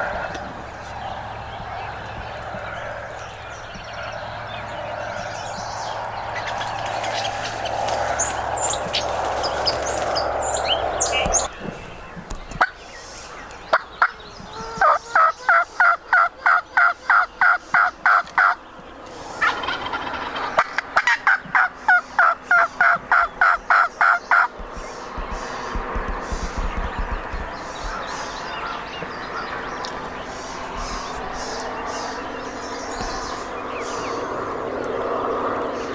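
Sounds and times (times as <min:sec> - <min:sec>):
steady rushing noise: 0:00.0 - 0:12.4, 0:23.0 - 0:35.9
wild turkey yelping: 0:14.8 - 0:18.6, 0:19.3 - 0:29.7
small bird chirps: 0:23.2 - 0:34.4.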